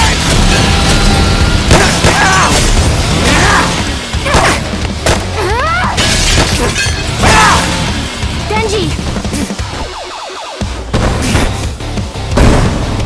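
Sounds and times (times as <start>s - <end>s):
action soundtrack music: 0.0s - 13.0s
crashing shattering impacts: 6.0s - 7.4s.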